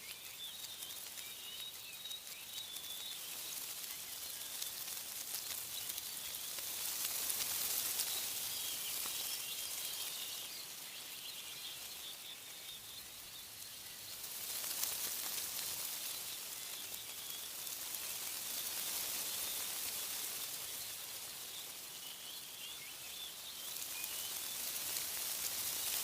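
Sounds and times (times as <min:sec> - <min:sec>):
faint bird chirps: 0:00.0 - 0:26.0
wind rustling leaves: 0:00.0 - 0:26.0.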